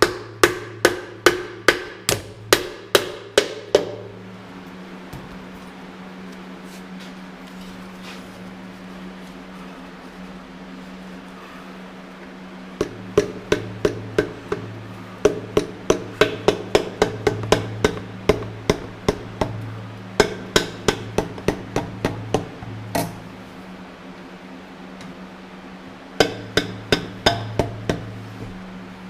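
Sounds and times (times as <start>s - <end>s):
hammer tapping: 0.0s - 4.1s, 12.8s - 23.2s, 26.2s - 28.1s.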